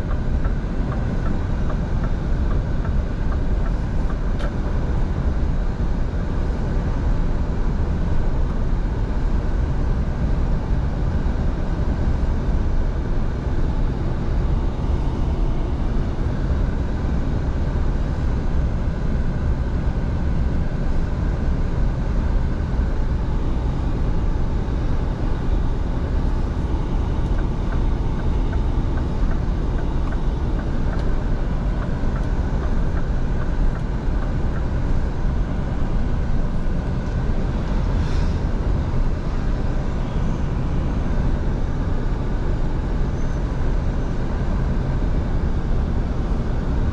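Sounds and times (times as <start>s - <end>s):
road and tyre noise: 0.0s - 9.4s, 20.6s - 46.9s
truck engine drone: 0.0s - 46.9s.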